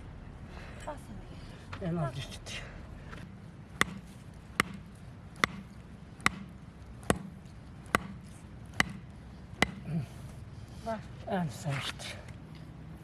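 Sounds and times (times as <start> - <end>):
sharp ringing knocks: 3.8 - 7.3, 7.9 - 9.8.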